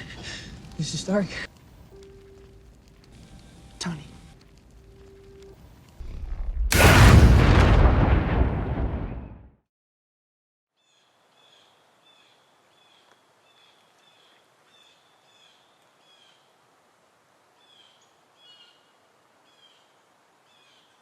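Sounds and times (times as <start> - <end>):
low hiss: 0.0 - 8.1.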